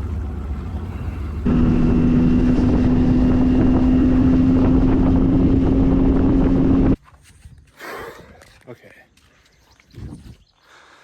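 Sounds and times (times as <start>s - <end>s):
outboard motor running: 0.0s - 7.0s.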